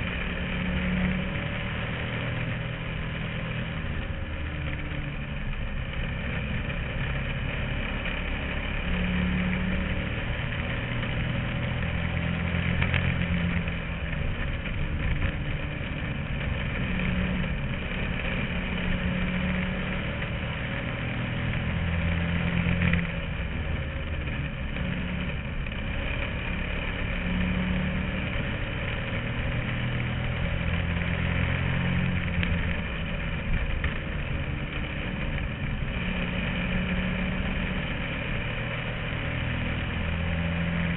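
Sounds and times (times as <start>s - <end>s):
race car engine from inside: 0.0s - 40.9s.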